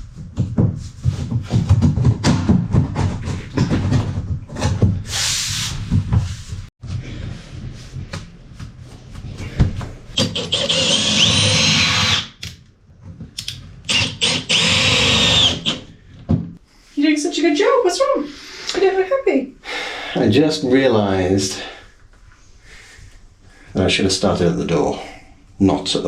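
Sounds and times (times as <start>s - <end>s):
knocks and thumps: 0.1s - 5.1s, 16.2s - 16.6s
power tool motor whine: 10.2s - 12.3s, 13.9s - 15.8s.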